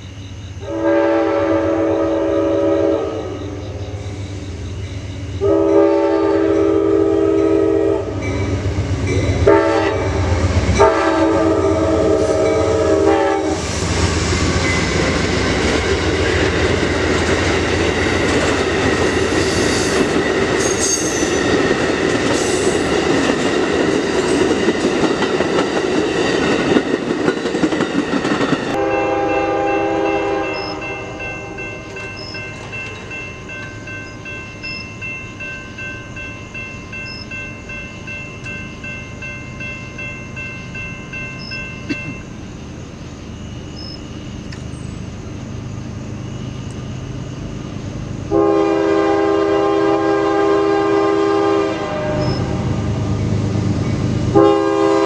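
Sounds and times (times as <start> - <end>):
crossing warning bell ringing: 0.0 - 13.6, 14.6 - 47.7
train horn: 0.6 - 3.8, 5.4 - 8.3, 9.4 - 13.6, 28.7 - 32.0, 48.3 - 53.1, 54.3 - 55.0
train wheels clattering: 13.6 - 35.8.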